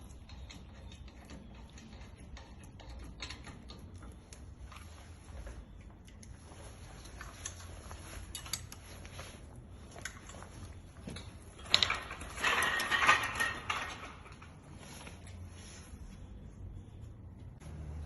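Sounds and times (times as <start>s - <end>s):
metal tools clinking: 10.0s - 15.4s.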